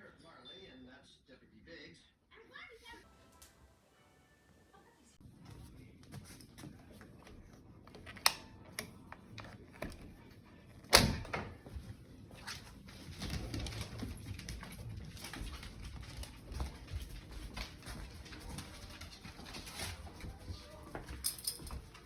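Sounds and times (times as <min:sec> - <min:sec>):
puppies moving on wood: 0:11.6 - 0:22.0.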